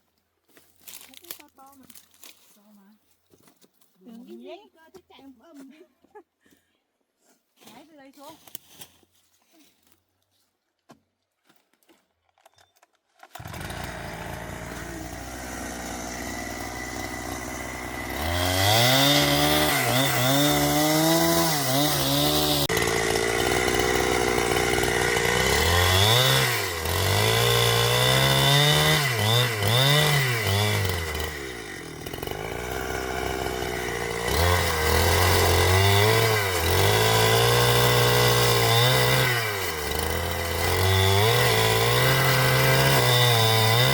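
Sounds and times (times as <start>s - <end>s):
chainsaw revving: 13.2s - 43.9s.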